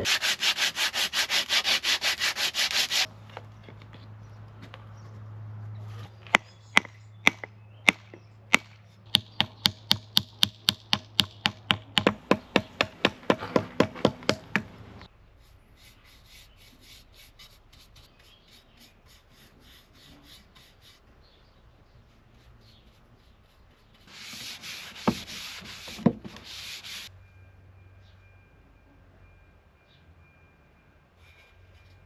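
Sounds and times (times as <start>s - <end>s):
rhythmic hand sanding: 0.0s - 3.1s, 22.7s - 27.1s
axe knocking on wood: 6.8s - 14.7s.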